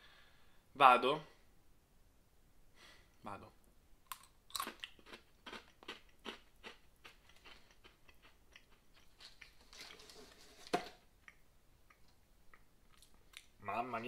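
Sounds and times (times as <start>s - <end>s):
snack stick crunching: 4.1s - 10.0s.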